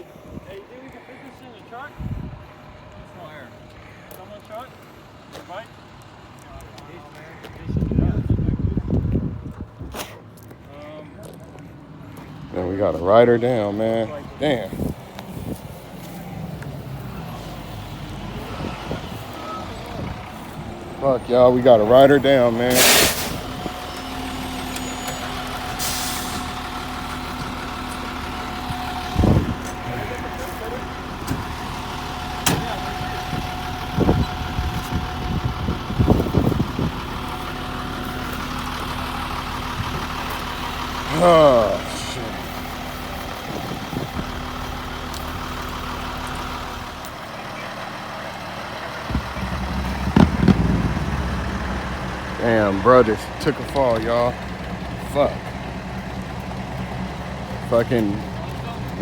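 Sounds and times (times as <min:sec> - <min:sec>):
vehicle engine idling: 0:00.0 - 0:59.0
deeper engine sound: 0:12.0 - 0:59.0
brief hiss: 0:22.7 - 0:23.6
loud thump: 0:49.1 - 0:51.7.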